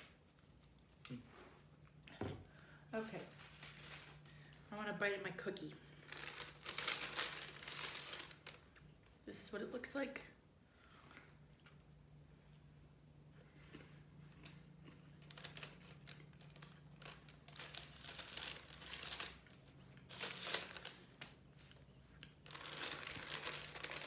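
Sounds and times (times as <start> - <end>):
low steady hum: 0.0 - 24.0
paper bag crinkling: 3.0 - 4.5, 6.0 - 8.7, 15.2 - 21.7, 22.4 - 24.0.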